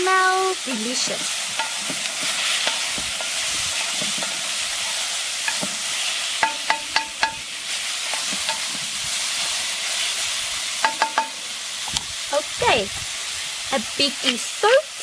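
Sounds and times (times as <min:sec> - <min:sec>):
food sizzling in a pot: 0:00.0 - 0:15.0
spoon knocking on a pot: 0:06.4 - 0:07.4, 0:10.8 - 0:11.3.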